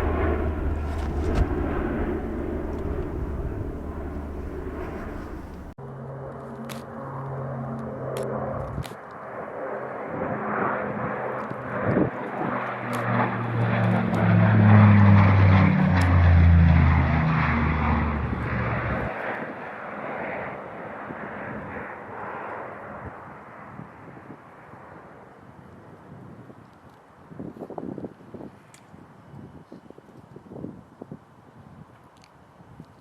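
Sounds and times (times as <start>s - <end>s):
turboprop plane flying past: 0.0s - 25.5s.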